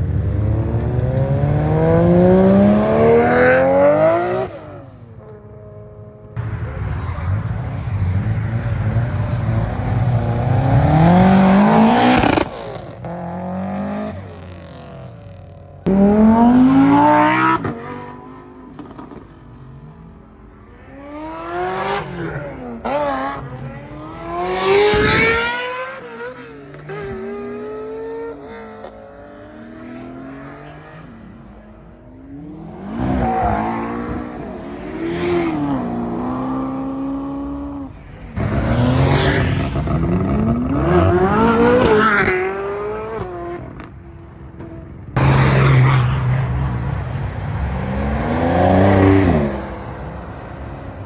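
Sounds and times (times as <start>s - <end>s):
car engines revving: 0.0s - 51.0s.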